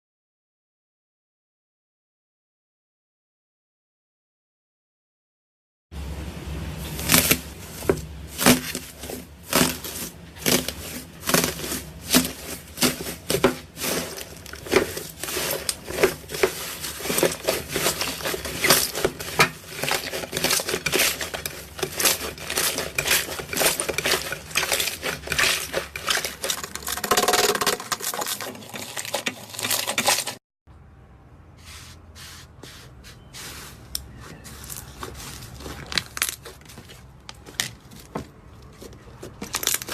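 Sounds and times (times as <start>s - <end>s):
slime crackling and popping: 7.0s - 7.6s.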